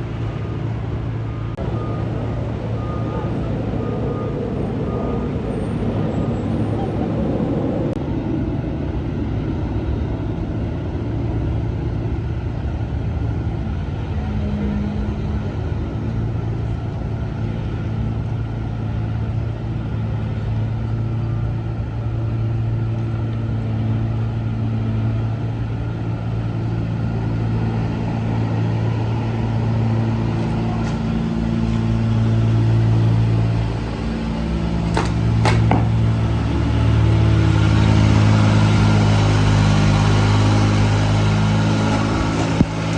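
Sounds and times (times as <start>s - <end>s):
heavy truck engine humming: 0.0s - 42.9s.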